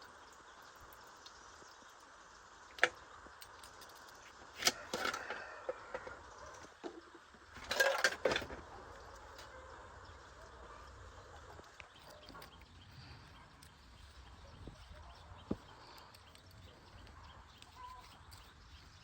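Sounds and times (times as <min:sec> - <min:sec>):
small hard objects clinking: 0:07.5 - 0:08.6, 0:11.5 - 0:19.0.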